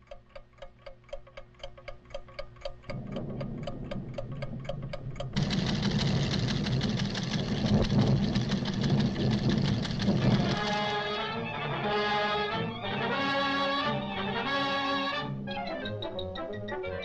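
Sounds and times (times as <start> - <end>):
measuring instruments ticking rapidly: 0.0 - 11.1
loud rumble of volcano tremors: 3.0 - 11.0.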